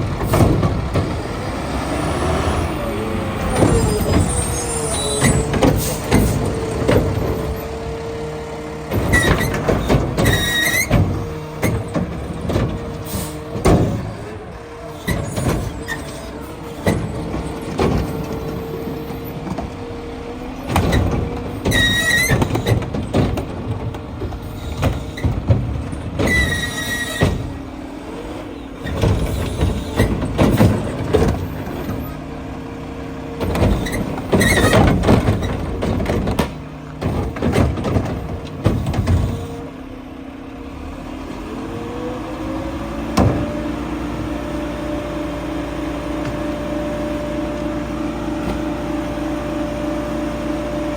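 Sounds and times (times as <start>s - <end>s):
brakes squealing: 0.0s - 40.1s
garbage truck running: 0.0s - 50.9s
clanks and knocks: 3.4s - 8.0s, 8.8s - 14.4s, 15.0s - 19.9s, 20.6s - 27.8s, 28.8s - 32.2s, 33.4s - 39.6s.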